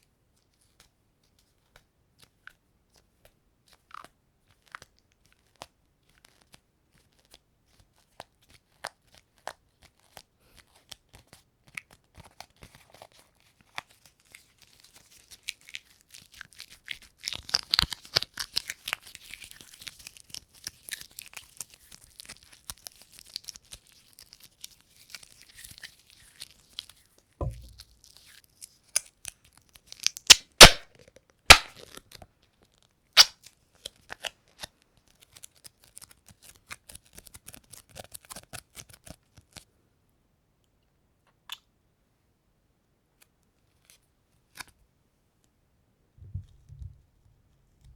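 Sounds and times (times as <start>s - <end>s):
crackling tearing: 29.9s - 30.9s, 31.5s - 32.2s
sharp snaps: 30.3s - 30.9s, 31.5s - 31.8s
sticky surface peeling: 31.5s - 31.8s.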